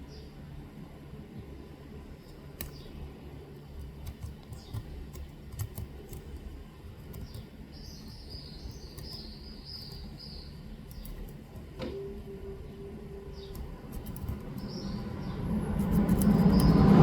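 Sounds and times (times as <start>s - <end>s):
low background rumble: 0.0s - 17.0s
metal tweezers clicking and scraping: 15.8s - 16.9s.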